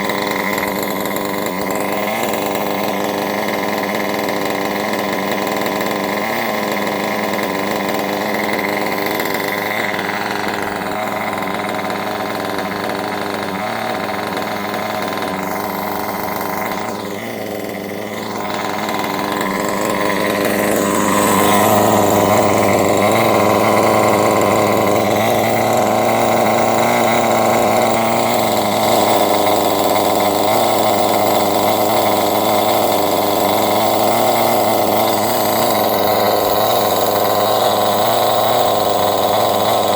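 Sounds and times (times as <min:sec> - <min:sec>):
model buggy engine running: 0:00.0 - 0:39.9.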